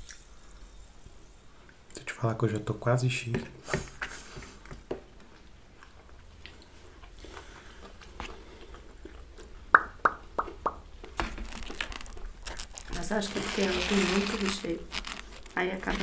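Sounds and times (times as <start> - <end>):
wet mouth sounds: 0.0 - 0.3, 6.0 - 13.0
chewing pizza: 4.5 - 13.0.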